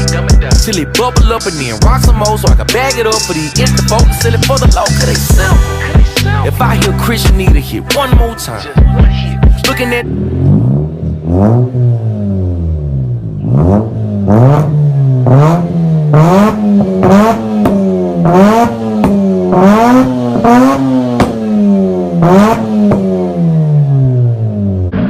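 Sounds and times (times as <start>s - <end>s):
rotary engine revving: 9.5s - 25.0s.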